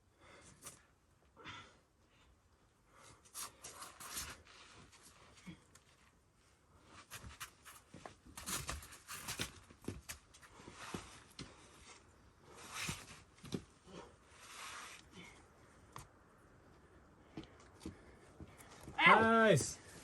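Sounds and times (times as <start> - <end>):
shoes and hands scraping rock: 3.4 - 5.1, 7.0 - 15.1.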